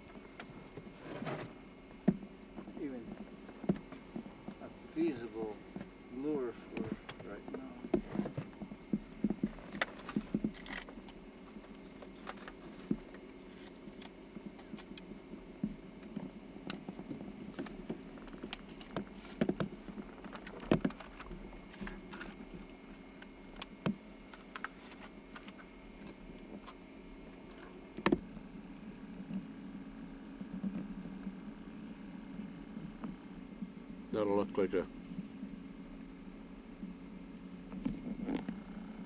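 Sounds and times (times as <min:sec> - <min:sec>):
steady low hum: 0:00.0 - 0:39.0
fishing gear clicking and knocking: 0:09.3 - 0:11.2.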